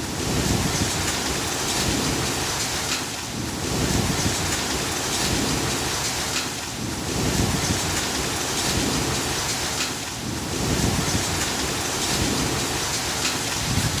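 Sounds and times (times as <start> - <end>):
heavy rain pouring: 0.0 - 14.0
low rumble of thunder: 3.3 - 6.2, 6.8 - 9.5, 10.2 - 14.0.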